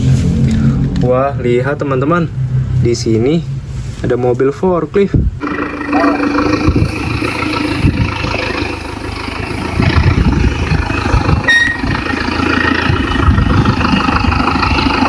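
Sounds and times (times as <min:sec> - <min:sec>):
vehicle engine rumbling unevenly: 0:00.0 - 0:15.0
short high beep: 0:11.5 - 0:11.9.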